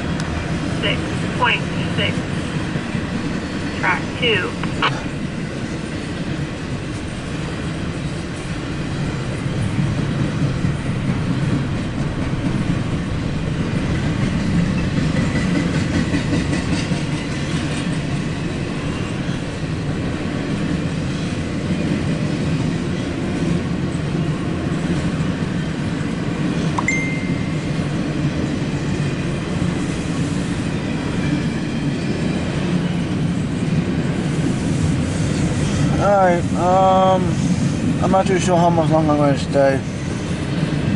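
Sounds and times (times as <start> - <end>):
freight train rolling past: 0.0 - 40.9
brief high-pitched tone: 26.8 - 27.8.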